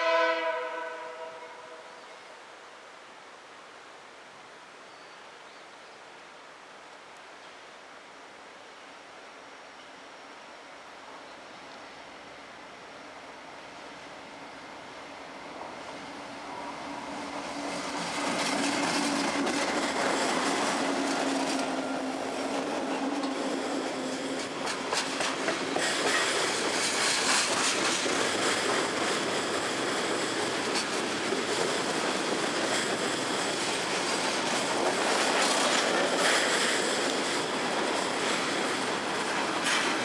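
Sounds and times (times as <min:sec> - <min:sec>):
locomotive engines droning: 0:11.1 - 0:26.5.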